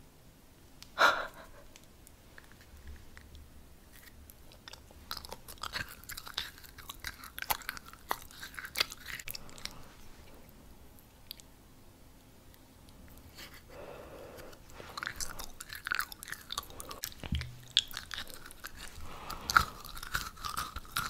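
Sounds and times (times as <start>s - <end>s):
chewing and crunching sweet: 1.7s - 11.6s, 12.5s - 21.0s
wet mouth clicks: 11.0s - 11.5s, 14.4s - 21.0s.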